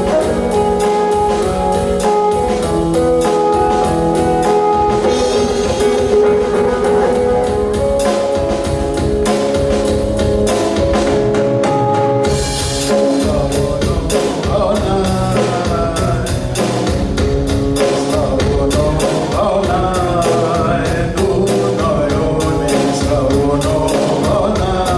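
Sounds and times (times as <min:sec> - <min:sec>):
person singing: 0:00.0 - 0:08.2, 0:12.9 - 0:16.8, 0:17.8 - 0:24.9
drum kit: 0:00.0 - 0:24.9
fusion band playing: 0:00.0 - 0:24.9.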